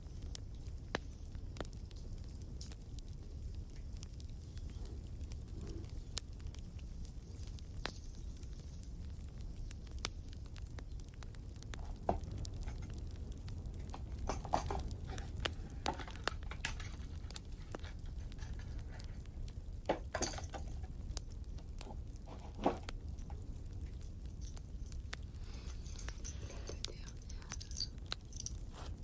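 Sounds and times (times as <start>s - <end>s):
wood fire crackling: 0.0s - 29.0s
ornaments clicking and rustling: 11.6s - 29.0s.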